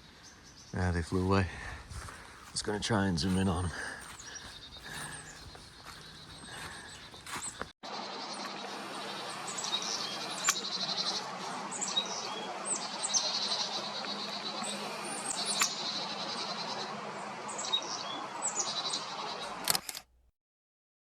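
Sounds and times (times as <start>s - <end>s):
chickadees calling: 0.3s - 19.6s
sharp clicks: 10.4s - 10.7s, 19.6s - 20.1s.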